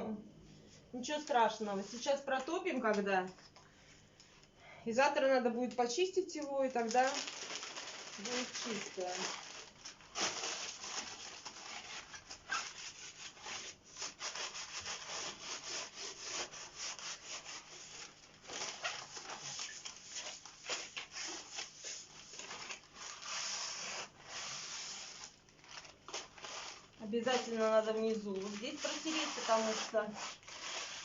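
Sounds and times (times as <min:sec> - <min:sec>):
newspaper scrubbing glass: 0:08.2 - 0:25.4, 0:26.1 - 0:31.0.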